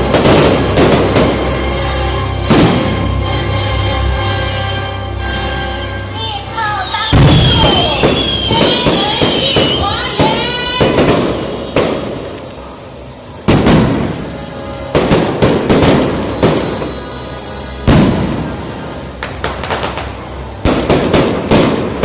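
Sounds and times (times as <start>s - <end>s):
fireworks bangs and crackles: 0.0s - 3.4s, 7.1s - 22.0s
fireworks whistles: 6.8s - 22.0s.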